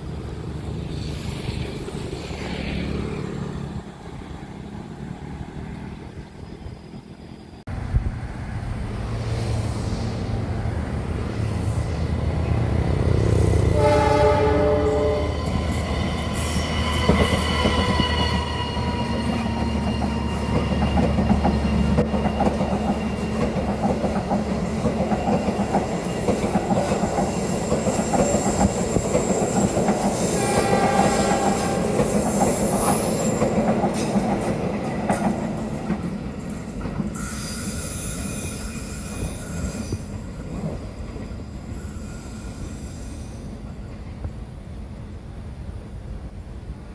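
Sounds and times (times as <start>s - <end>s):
rolling clatter of train cars: 8.8s - 44.8s
train horn: 13.6s - 15.8s, 30.2s - 33.0s
high wheel squeal: 13.7s - 23.8s, 25.1s - 34.1s, 37.2s - 40.5s, 41.6s - 43.6s.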